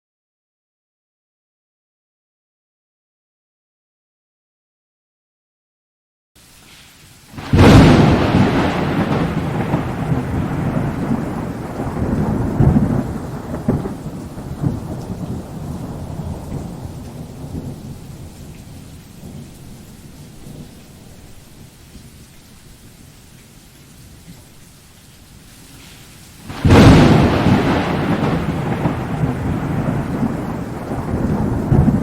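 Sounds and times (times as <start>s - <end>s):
thunderclap with rolling rumble: 7.4s - 21.3s, 26.5s - 32.0s.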